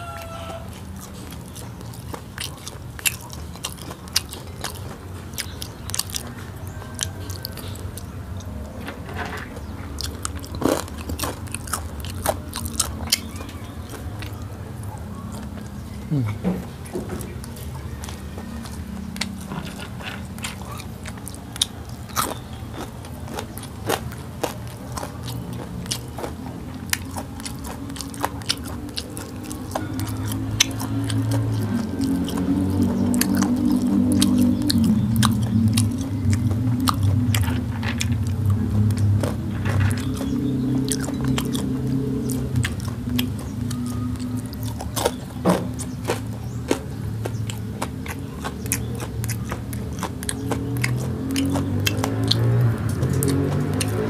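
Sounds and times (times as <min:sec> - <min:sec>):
chewing and crunching food: 0:00.0 - 0:54.0
sharp mouth clicks: 0:25.0 - 0:54.0.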